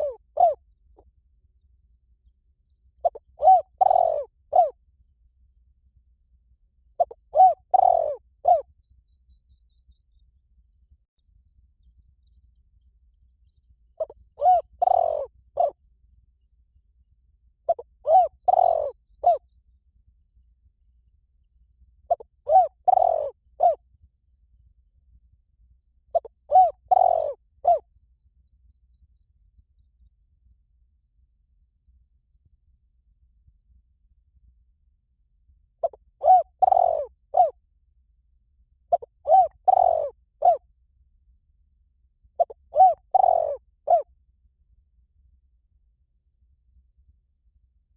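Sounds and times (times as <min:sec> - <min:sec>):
dove cooing: 0:00.0 - 0:00.6, 0:03.0 - 0:04.8, 0:07.0 - 0:08.6, 0:14.0 - 0:15.8, 0:17.7 - 0:19.4, 0:22.1 - 0:23.8, 0:26.1 - 0:27.8, 0:35.8 - 0:37.6, 0:38.9 - 0:40.6, 0:42.4 - 0:44.0.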